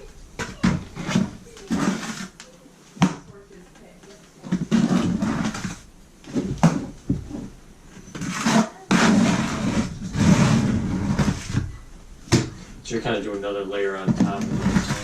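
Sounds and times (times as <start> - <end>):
trowel scraping mortar: 0.6 - 2.4, 4.5 - 5.8, 8.0 - 11.6, 14.1 - 15.0.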